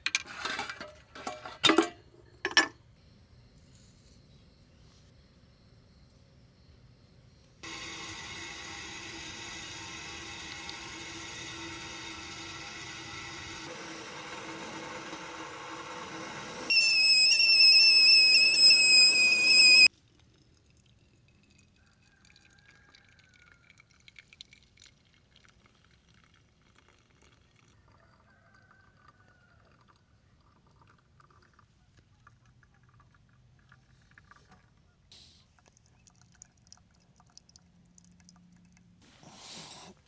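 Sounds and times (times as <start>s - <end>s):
kettle whistling: 7.6s - 19.9s
steady hiss: 7.6s - 19.9s.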